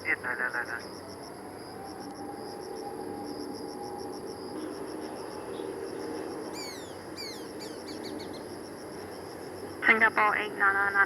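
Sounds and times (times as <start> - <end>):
distant jet engines drone: 0.0 - 11.0
insects chirping: 0.0 - 11.0
bird whistles: 6.6 - 8.4.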